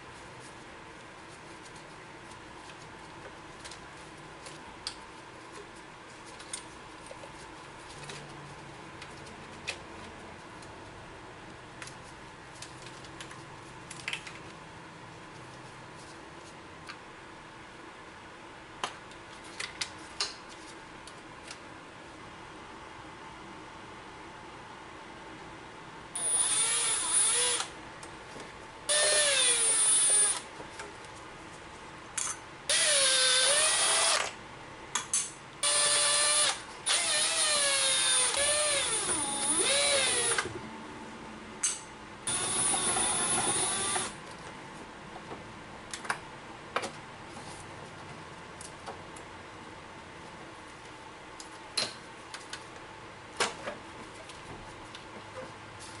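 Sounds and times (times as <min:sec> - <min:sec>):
power tool motor whine: 0:26.2 - 0:27.7, 0:32.7 - 0:34.3, 0:35.6 - 0:40.5, 0:42.3 - 0:44.2.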